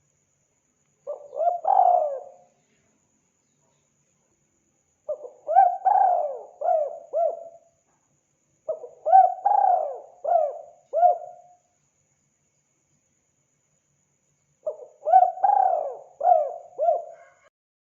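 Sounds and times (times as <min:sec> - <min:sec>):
dove cooing: 0:01.1 - 0:02.5, 0:05.1 - 0:07.6, 0:08.7 - 0:11.5, 0:14.7 - 0:17.5.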